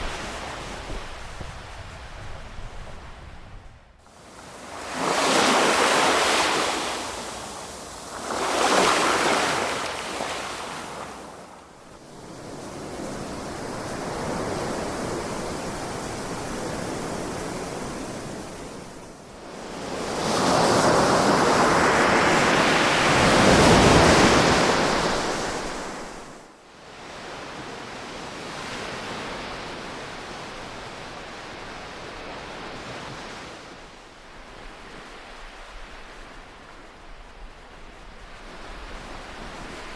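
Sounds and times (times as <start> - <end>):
ocean waves breaking: 4.0 - 19.0, 19.6 - 26.4.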